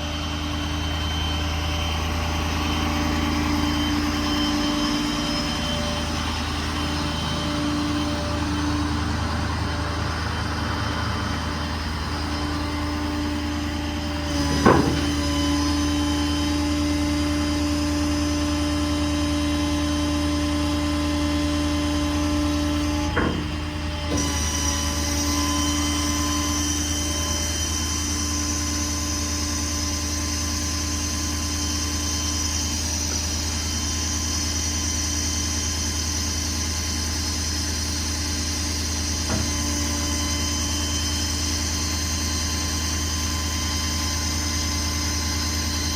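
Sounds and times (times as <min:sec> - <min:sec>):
diesel engine running: 0:00.0 - 0:45.9
hydraulic whine: 0:00.0 - 0:45.9
mechanical clunk: 0:14.3 - 0:15.4, 0:22.8 - 0:24.7.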